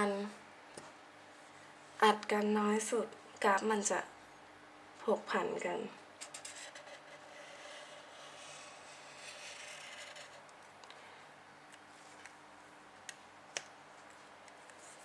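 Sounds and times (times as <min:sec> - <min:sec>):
pen scratching while writing: 0:06.2 - 0:10.5.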